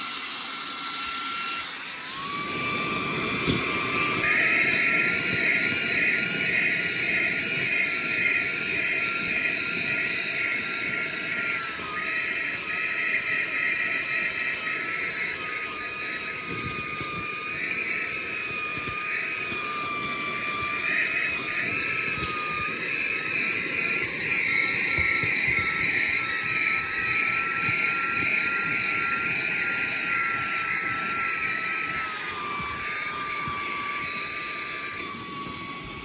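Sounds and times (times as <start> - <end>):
handheld vacuum running: 0.0 - 36.0.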